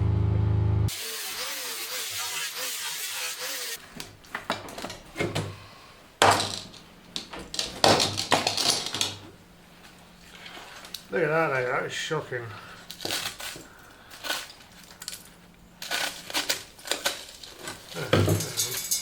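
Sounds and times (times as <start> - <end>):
hissing power tool: 0.9 - 3.8.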